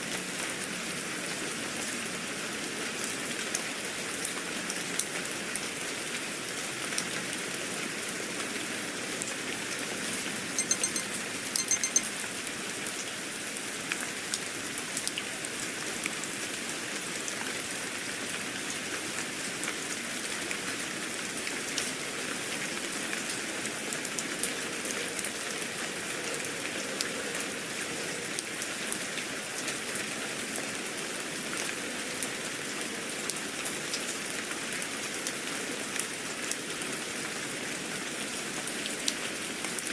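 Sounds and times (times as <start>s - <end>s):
rain pattering on a surface: 0.0s - 10.6s, 12.1s - 39.9s
short high-pitched chime: 10.6s - 12.1s.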